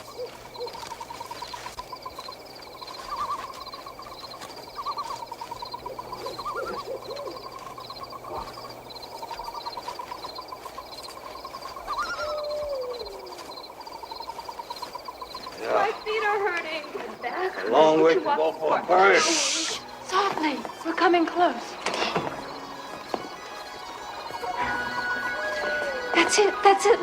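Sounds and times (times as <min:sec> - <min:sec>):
pulsing chirping chorus: 0:00.0 - 0:27.0
short animal calls: 0:04.7 - 0:08.7, 0:11.5 - 0:16.0
falling animal call: 0:04.8 - 0:08.7, 0:11.6 - 0:16.1, 0:24.0 - 0:27.0.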